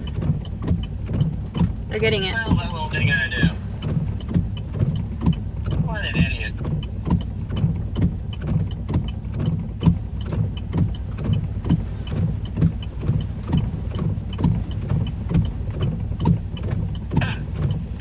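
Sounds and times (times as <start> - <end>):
low vehicle rumble: 0.0 - 18.0
regular knocking: 0.0 - 18.0.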